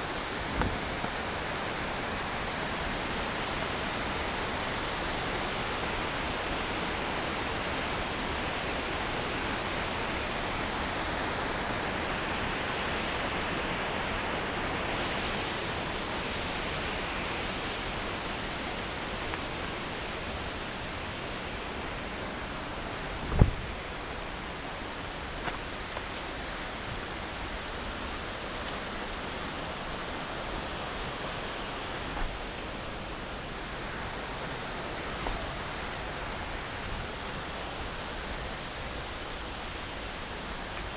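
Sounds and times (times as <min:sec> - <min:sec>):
river water rushing over rocks: 0:00.0 - 0:40.9.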